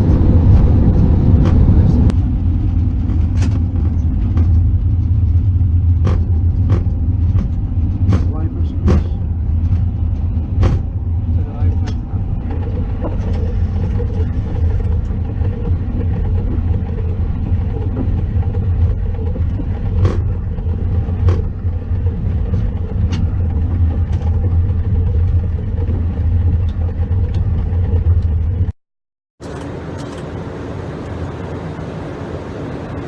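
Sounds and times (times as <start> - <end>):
airliner rumbling on runway: 0.0 - 28.8, 29.4 - 33.0.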